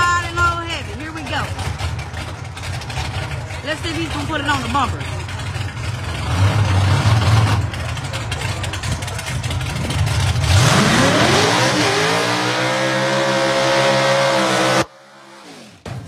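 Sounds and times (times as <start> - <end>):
drag-racing car engine revving: 0.0 - 16.0.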